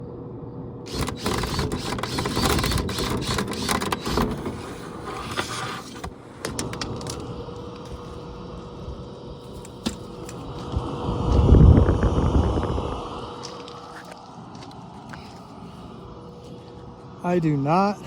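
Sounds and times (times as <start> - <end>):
motor hum: 0.4 - 17.9.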